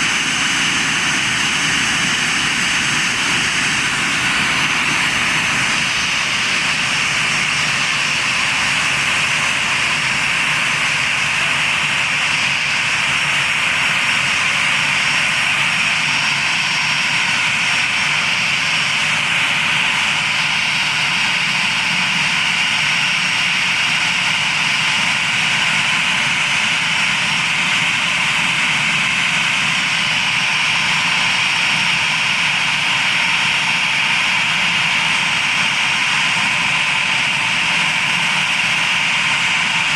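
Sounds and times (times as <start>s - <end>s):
jet engine running: 0.0s - 39.9s.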